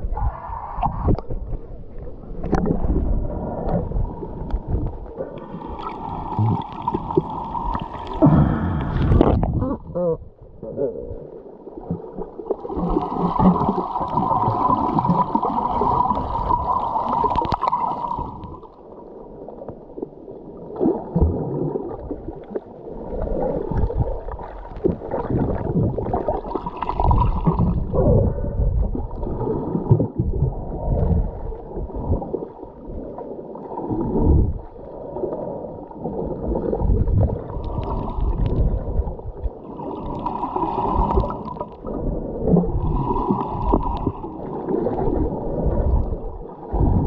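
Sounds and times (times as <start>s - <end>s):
gurgling exhaled bubbles: 2.3s - 18.8s, 20.6s - 47.0s.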